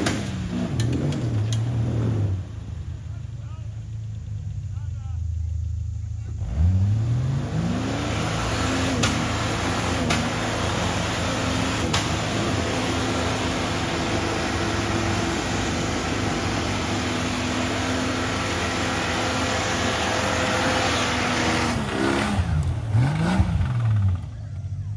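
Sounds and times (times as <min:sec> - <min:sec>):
engine revving at high revs: 0:00.0 - 0:02.4, 0:06.4 - 0:24.4.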